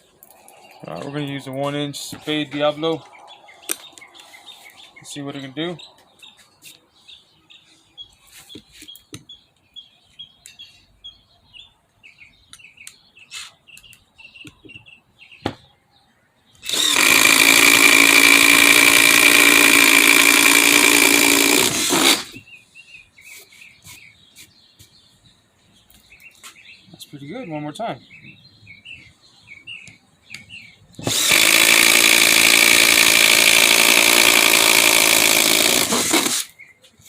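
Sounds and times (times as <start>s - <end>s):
birds chirping faintly: 0.0s - 21.6s, 22.2s - 32.0s, 36.4s - 37.0s
impact driver boring a hole: 16.6s - 22.4s, 31.0s - 36.5s.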